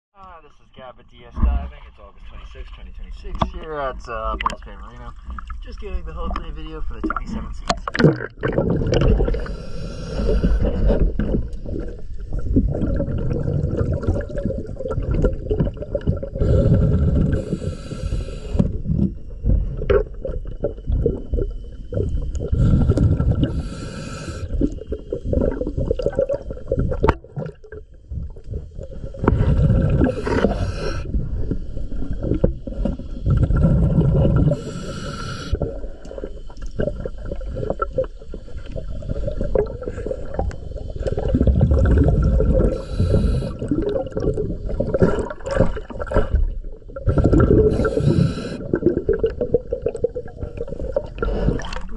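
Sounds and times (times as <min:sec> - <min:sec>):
water bubbling and rumbling: 0:01.3 - 0:51.9
diver breathing through regulator: 0:09.1 - 0:11.3, 0:16.3 - 0:19.1, 0:22.4 - 0:24.9, 0:28.6 - 0:36.6, 0:39.0 - 0:43.9, 0:46.0 - 0:48.9, 0:50.5 - 0:51.9.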